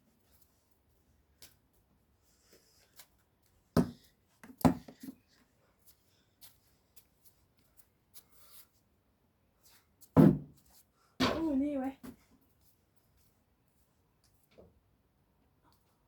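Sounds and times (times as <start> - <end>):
knocks and thumps: 10.2 - 10.5.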